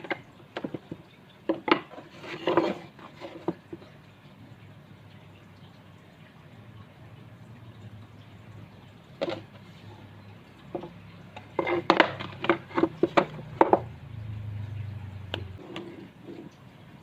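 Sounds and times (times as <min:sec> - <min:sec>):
hard objects knocking and clattering: 0:00.0 - 0:03.8, 0:10.6 - 0:14.0.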